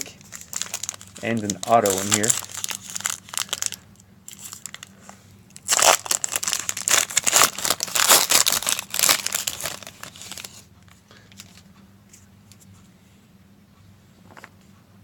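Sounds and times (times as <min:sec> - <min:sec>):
wrapper tearing and crinkling: 0:00.0 - 0:04.9, 0:05.6 - 0:10.6.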